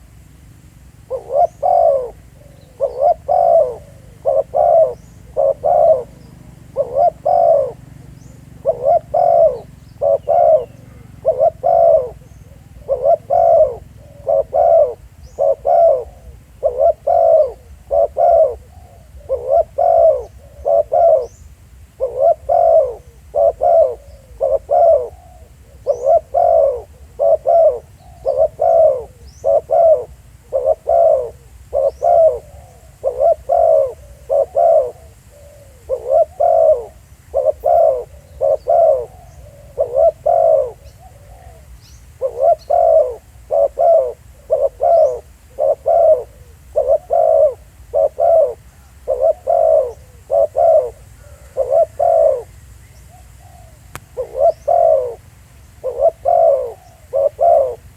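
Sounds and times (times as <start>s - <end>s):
doves cooing: 0.0s - 57.9s
faint small bird chirps: 1.1s - 57.8s.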